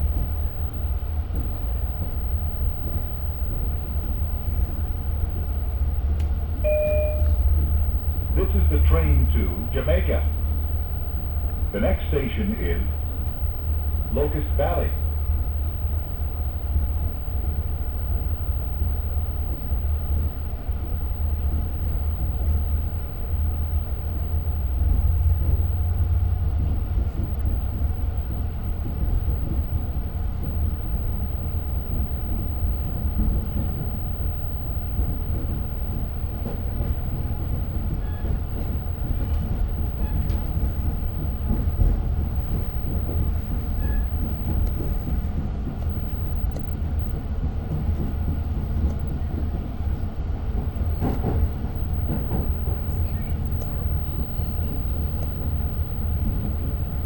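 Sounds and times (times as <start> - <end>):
train rumble inside carriage: 0.0 - 57.0
faint clicks: 6.2 - 6.4.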